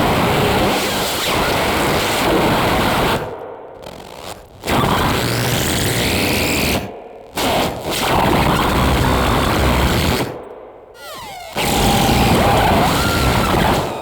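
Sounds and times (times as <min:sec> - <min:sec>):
loud walls of noise: 0:08.1 - 0:14.0
sliding tones: 0:11.0 - 0:14.0
steady held tone: 0:11.0 - 0:14.0.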